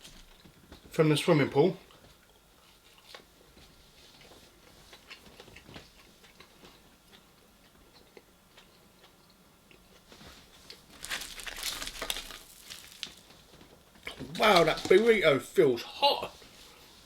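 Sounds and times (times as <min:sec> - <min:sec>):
person chewing food: 0:01.9 - 0:14.8
crackling: 0:10.8 - 0:15.3.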